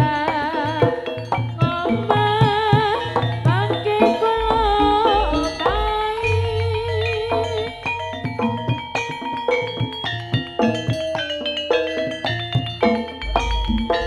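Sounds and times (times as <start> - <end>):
drum and percussion strikes: 0.0 - 14.0
deep drum beats: 1.6 - 9.3, 12.6 - 14.0
wavering lead melody with vibrato: 3.8 - 10.6, 12.4 - 14.0.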